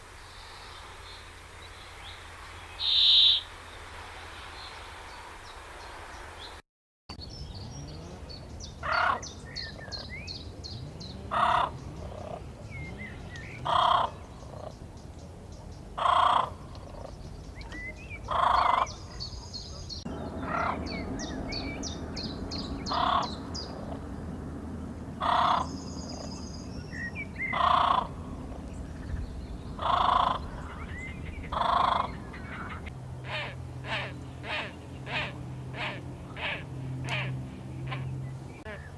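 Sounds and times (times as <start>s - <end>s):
small birds chirping: 0.0s - 38.9s
large bird calling harshly: 2.8s - 3.5s, 25.2s - 25.7s, 27.4s - 28.2s, 29.8s - 38.1s.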